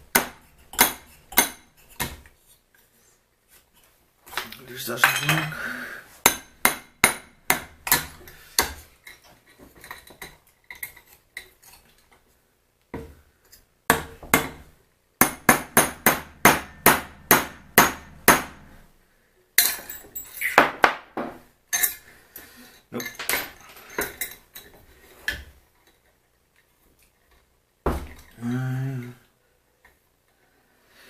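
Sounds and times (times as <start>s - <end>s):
hammer striking metal: 6.3s - 8.1s, 15.2s - 18.6s.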